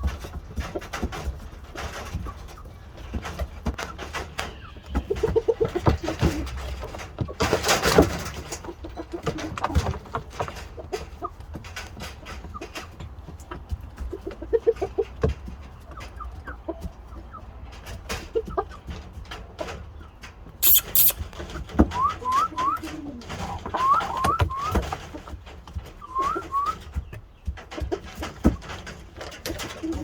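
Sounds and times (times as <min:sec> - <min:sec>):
chickens calling softly: 0:20.0 - 0:21.2, 0:21.9 - 0:27.5.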